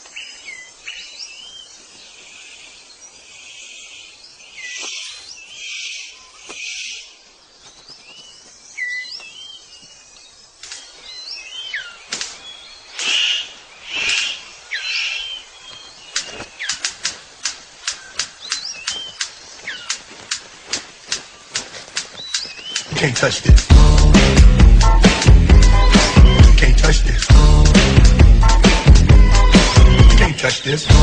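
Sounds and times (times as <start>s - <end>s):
bird sharp clicks: 10.6s - 11.0s, 12.0s - 14.4s, 15.7s - 23.7s
bird hissing bursts: 11.9s - 20.0s
bird rasping calls: 12.9s - 20.4s, 21.4s - 27.8s.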